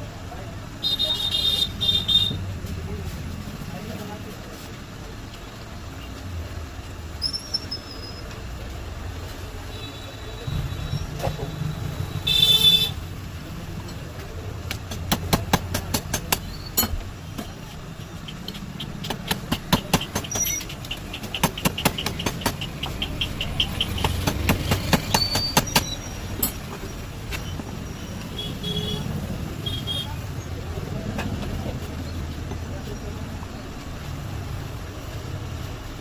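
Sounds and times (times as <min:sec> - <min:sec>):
sharp clicks and taps: 0:13.8 - 0:27.7.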